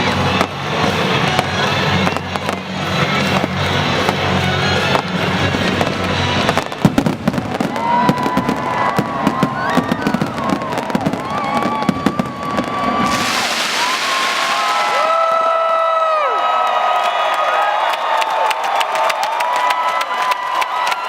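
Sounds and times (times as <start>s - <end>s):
music: 0.0s - 13.2s
fireworks bangs and crackles: 0.0s - 15.8s
crowd cheering: 1.1s - 21.0s.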